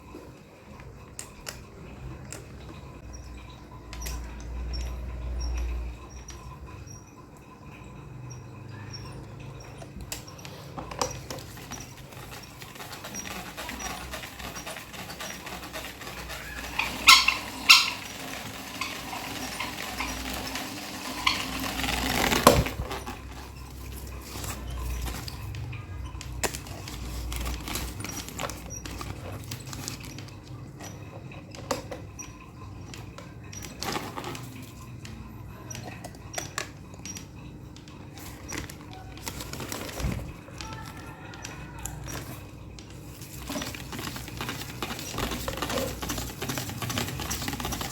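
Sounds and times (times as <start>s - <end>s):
electric fan humming: 9.0s - 30.6s.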